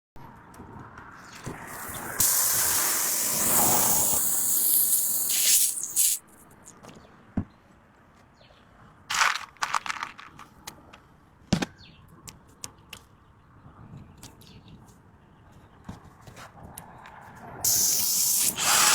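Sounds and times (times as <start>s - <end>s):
air hissing loudly: 1.7s - 6.2s, 17.7s - 18.9s
small tools clicking and scraping: 2.1s - 6.7s.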